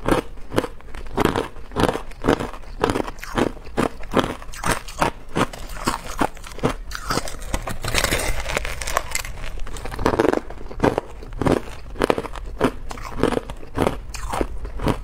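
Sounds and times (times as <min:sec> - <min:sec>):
ice being chewed: 0:00.0 - 0:15.0.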